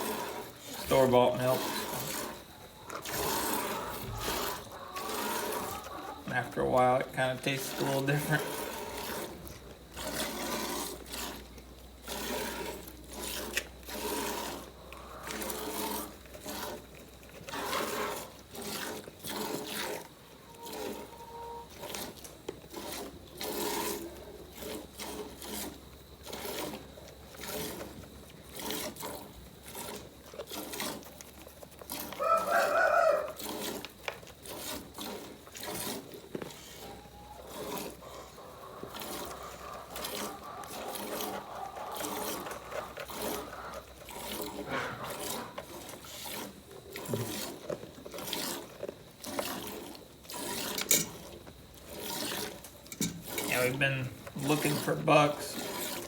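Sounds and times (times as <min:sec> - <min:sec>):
loud animal call: 0:32.2 - 0:33.5, 0:36.6 - 0:45.6.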